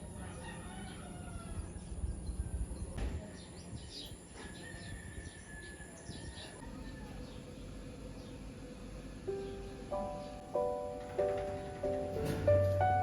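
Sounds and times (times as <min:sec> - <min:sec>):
small birds chirping: 0:01.7 - 0:10.9.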